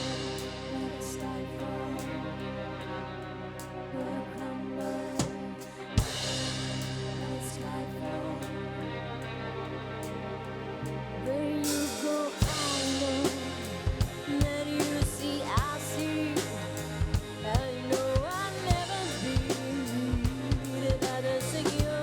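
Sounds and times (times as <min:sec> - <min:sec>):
gliding melodic line: 0:00.0 - 0:22.0
drum kit beat: 0:11.8 - 0:22.0.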